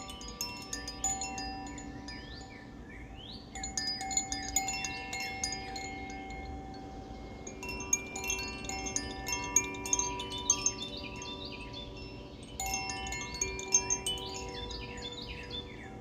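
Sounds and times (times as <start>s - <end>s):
wind chime ringing: 0.0s - 2.9s, 3.5s - 16.0s.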